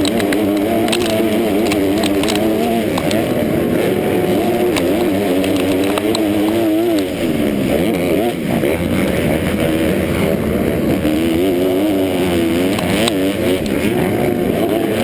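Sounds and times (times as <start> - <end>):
sharp clicks: 0.0 - 3.3, 4.6 - 7.1
dirt bike engine revving: 0.0 - 15.0.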